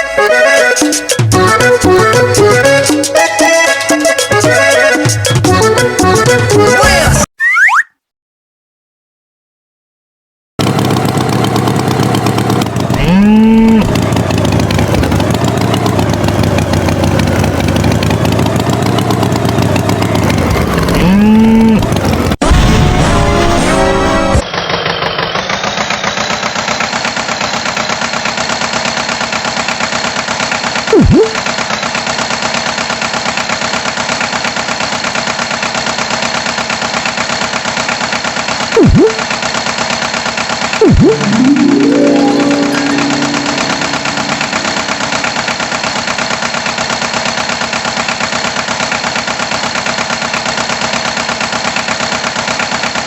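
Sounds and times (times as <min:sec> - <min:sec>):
tractor engine running: 0:10.6 - 0:22.8, 0:24.0 - 0:53.0.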